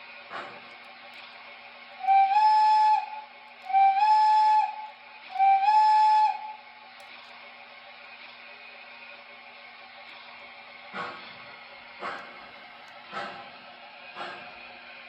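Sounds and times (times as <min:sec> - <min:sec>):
model train whistle blasts: 0:02.0 - 0:06.7.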